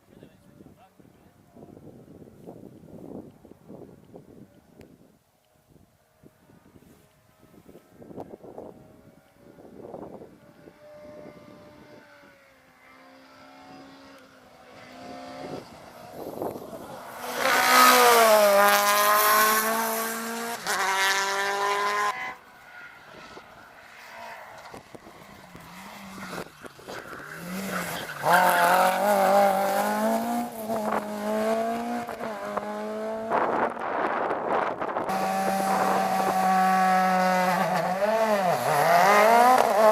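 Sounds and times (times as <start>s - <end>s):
rally car engine revving hard: 13.2s - 22.4s, 25.3s - 34.2s, 35.0s - 39.9s.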